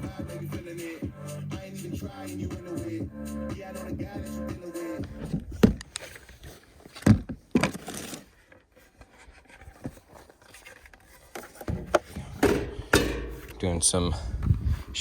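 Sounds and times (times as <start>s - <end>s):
packaging rustle: 5.8s - 11.7s.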